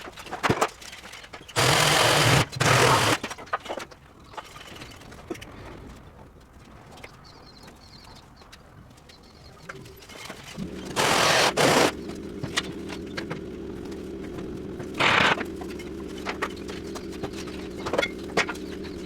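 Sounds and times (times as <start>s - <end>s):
machine humming: 1.6s - 3.2s, 10.6s - 19.0s
knocks and clanks: 10.3s - 19.0s
loud hissing bursts: 10.6s - 12.2s.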